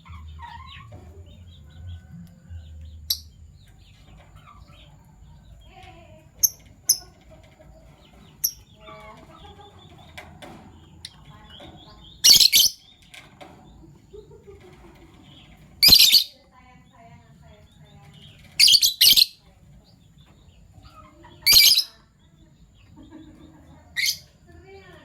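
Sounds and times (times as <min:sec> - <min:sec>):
lovebirds chattering: 0:00.0 - 0:25.0
high bird chirps: 0:06.4 - 0:07.2, 0:11.8 - 0:13.0, 0:15.5 - 0:16.5, 0:18.2 - 0:19.4, 0:20.8 - 0:22.2, 0:23.9 - 0:24.4.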